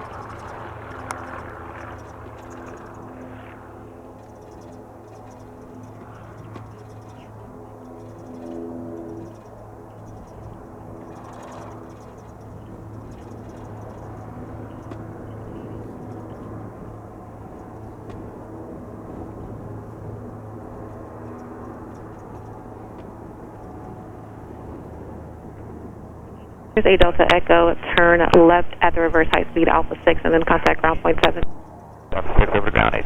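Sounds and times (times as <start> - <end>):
propeller plane engine drone: 0.0 - 33.0.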